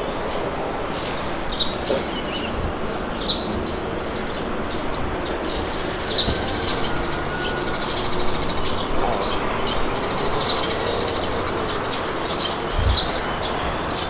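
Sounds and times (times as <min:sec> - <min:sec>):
birds chirping and trilling: 0:00.0 - 0:14.0
wind blowing: 0:00.0 - 0:14.0.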